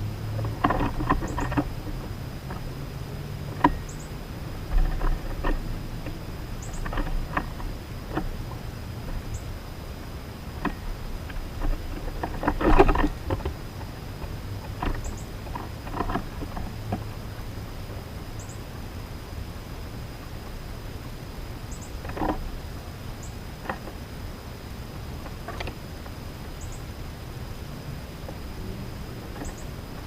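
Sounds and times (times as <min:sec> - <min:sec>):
birds tapping at feeder: 0:00.1 - 0:09.6, 0:10.5 - 0:18.7, 0:21.7 - 0:22.6, 0:28.2 - 0:30.0
faint high bird chirps: 0:03.7 - 0:04.2, 0:06.6 - 0:07.0, 0:15.0 - 0:15.4, 0:18.4 - 0:18.7, 0:21.7 - 0:22.0, 0:26.6 - 0:26.9, 0:29.4 - 0:29.8.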